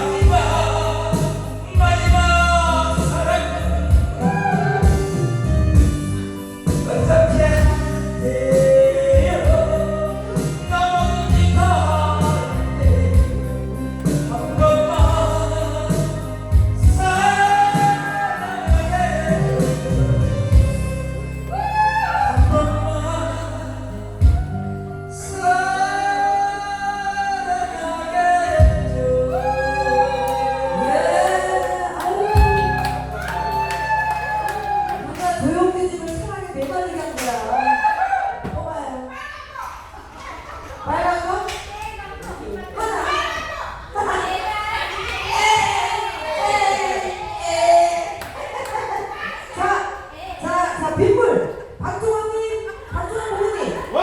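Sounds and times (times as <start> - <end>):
person singing: 0.0 - 36.9
instrumental backing music: 0.0 - 38.6.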